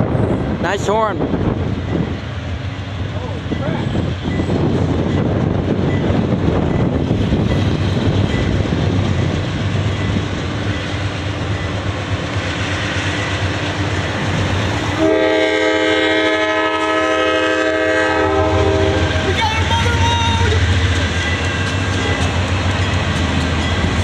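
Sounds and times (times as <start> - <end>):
freight train wheels rumbling on rail: 0.0 - 24.0
locomotive air horn chord: 15.0 - 19.1.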